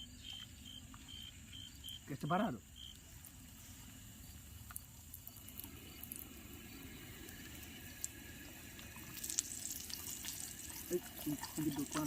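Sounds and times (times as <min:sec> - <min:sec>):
insect trilling: 0:00.0 - 0:12.0.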